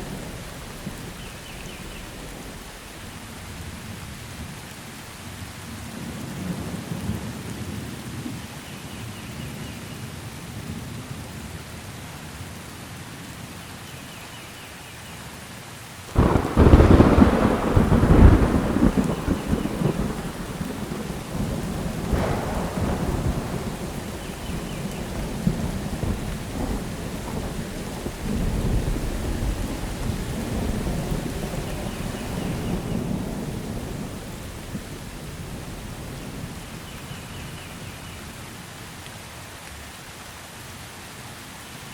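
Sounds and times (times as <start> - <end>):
thunder rumbling: 0.0 - 4.1, 16.1 - 38.7
rain hissing: 0.0 - 41.9.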